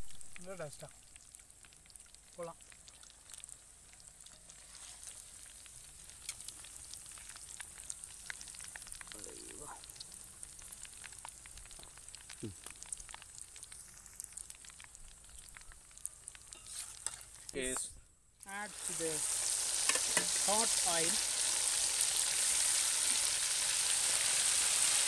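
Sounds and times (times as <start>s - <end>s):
chicken deep-frying in oil: 0.0s - 17.7s, 18.4s - 25.0s
ladle stirring in pan: 3.0s - 9.1s, 15.2s - 17.6s, 18.7s - 23.4s.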